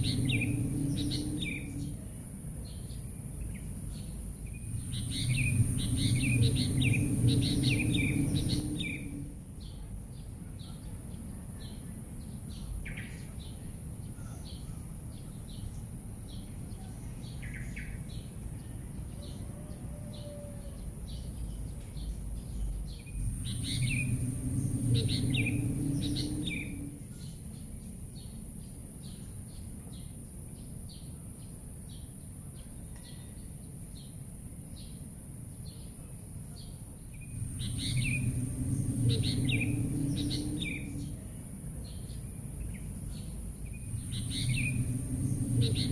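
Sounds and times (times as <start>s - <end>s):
steady high whine: 0.0s - 10.2s, 22.2s - 28.8s, 37.0s - 45.9s
birds chirping: 0.0s - 31.2s, 36.6s - 45.9s
low background rumble: 0.0s - 32.6s, 33.7s - 45.9s.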